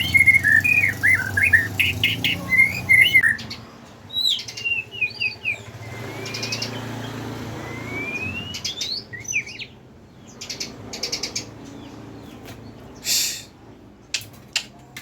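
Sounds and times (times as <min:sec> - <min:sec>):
bird whistled song: 0:00.0 - 0:11.5.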